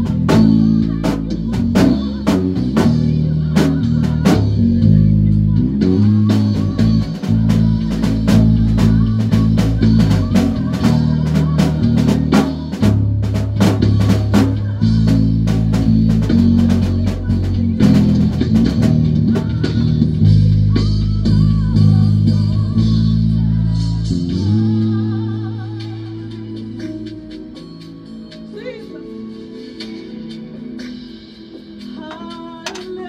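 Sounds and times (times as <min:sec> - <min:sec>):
drum kit hits: 0:00.0 - 0:05.0, 0:05.6 - 0:22.5
live band playing: 0:00.0 - 0:23.4
stepping bass line: 0:00.0 - 0:26.3
guitar: 0:00.0 - 0:33.0.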